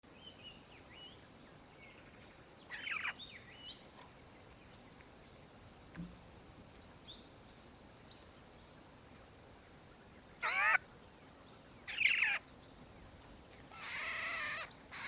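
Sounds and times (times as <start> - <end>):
birds chirping: 0.2 - 5.4, 10.2 - 10.8, 11.4 - 15.0
dull thump: 5.9 - 6.3
bird chattering call: 10.4 - 10.8.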